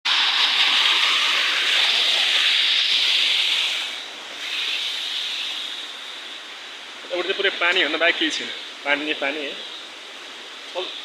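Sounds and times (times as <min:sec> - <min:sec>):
water rushing down waterfall: 0:00.1 - 0:11.0.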